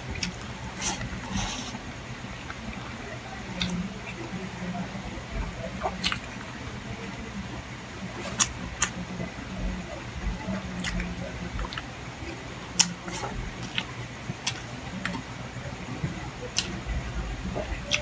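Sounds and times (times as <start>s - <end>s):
close-up chewing: 0.0s - 6.6s, 7.4s - 18.0s
low hum: 0.0s - 18.0s
mouth clicks and smacks: 3.6s - 4.3s, 5.4s - 6.5s, 8.1s - 9.0s, 9.6s - 15.4s, 16.0s - 18.0s.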